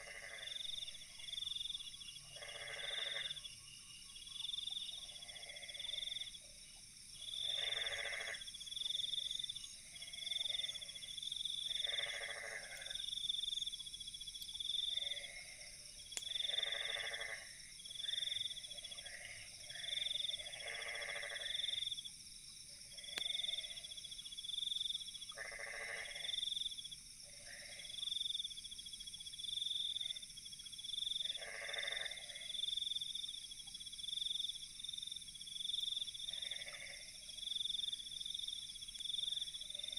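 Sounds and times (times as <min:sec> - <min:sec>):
frogs croaking: 0:00.0 - 0:28.6, 0:29.2 - 0:39.9
insect trilling: 0:02.4 - 0:03.5, 0:07.4 - 0:11.0, 0:11.7 - 0:13.7, 0:16.2 - 0:21.9, 0:25.3 - 0:26.4.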